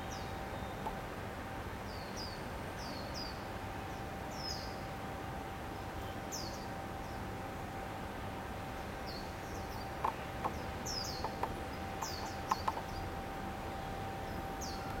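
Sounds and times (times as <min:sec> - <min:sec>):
faint steady tone: 0:00.0 - 0:15.0
birds chirping: 0:09.1 - 0:15.0
sharp ticks: 0:11.2 - 0:12.9.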